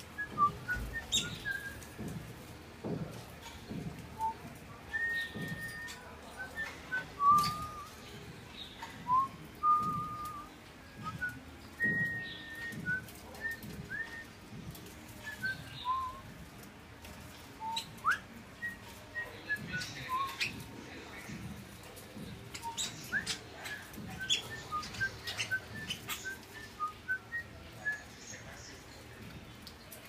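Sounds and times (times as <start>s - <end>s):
small birds whistling: 0.2s - 1.9s, 5.0s - 8.0s, 22.5s - 28.0s.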